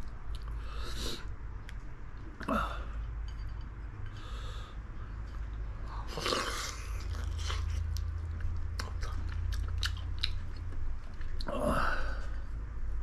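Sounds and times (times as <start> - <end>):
low hum: 0.0 - 13.0
chewing and biting: 5.3 - 11.6.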